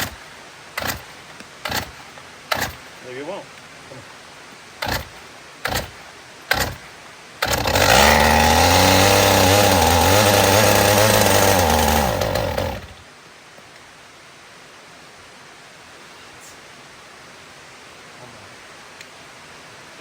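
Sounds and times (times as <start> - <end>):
chainsaw pull-starting: 0.0 - 3.0, 4.8 - 13.0
chainsaw running: 0.0 - 3.0, 4.8 - 13.0.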